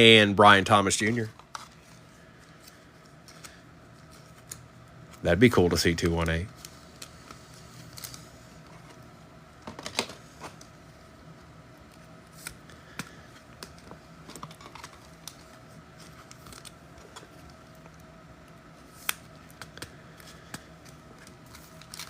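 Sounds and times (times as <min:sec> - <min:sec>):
faint steady hum: 0:00.0 - 0:22.0
trading cards clicking and sliding: 0:01.0 - 0:09.0.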